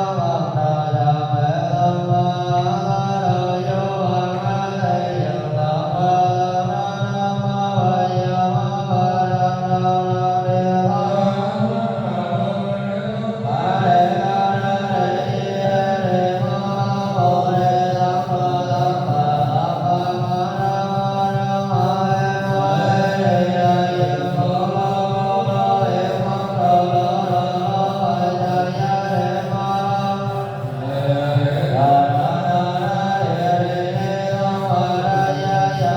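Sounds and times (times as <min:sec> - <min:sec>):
voices chanting: 0:10.8 - 0:35.9.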